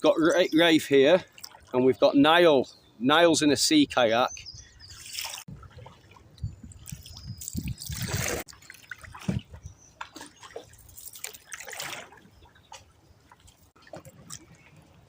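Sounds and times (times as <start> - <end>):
paddles splashing water: 0.1 - 2.3, 4.9 - 15.0
water dripping off paddle blades: 1.1 - 1.8, 4.9 - 15.0.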